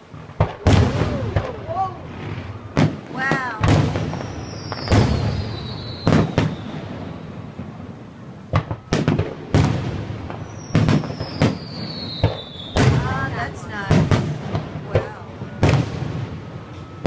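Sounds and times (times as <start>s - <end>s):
fireworks booming: 0.0s - 17.0s
falling whistle: 4.1s - 7.2s, 10.4s - 12.8s.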